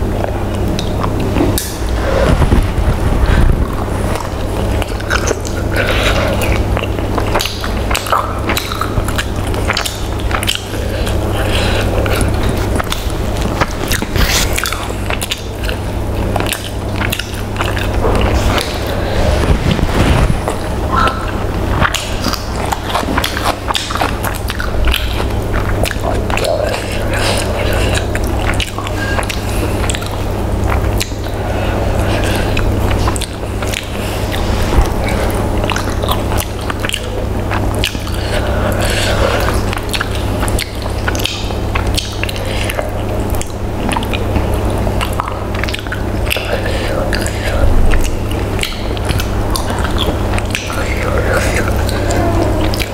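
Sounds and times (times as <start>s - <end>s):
person chewing and smacking: 0.0s - 52.9s
steady low hum: 0.0s - 52.9s
fingers pulling at meat: 0.2s - 52.9s.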